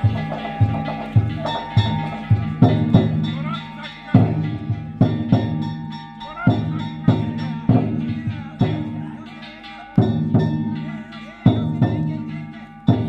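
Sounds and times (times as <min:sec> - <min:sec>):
taiko drum hits: 0:00.0 - 0:03.6, 0:04.2 - 0:09.0
metal gongs struck: 0:00.0 - 0:13.0.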